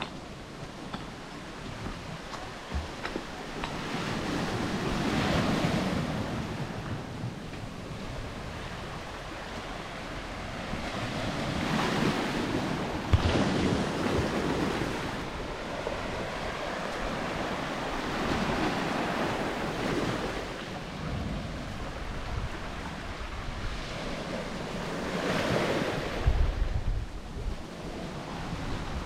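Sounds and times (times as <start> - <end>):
small waves washing ashore: 0.0 - 29.0
wind on microphone: 0.0 - 29.0.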